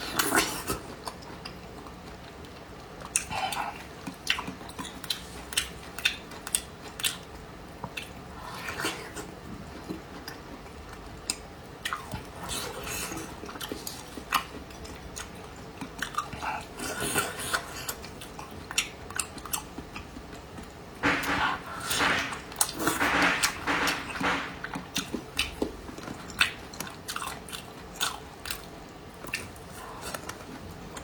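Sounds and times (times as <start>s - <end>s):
chewing and biting close up: 9.7s - 20.6s.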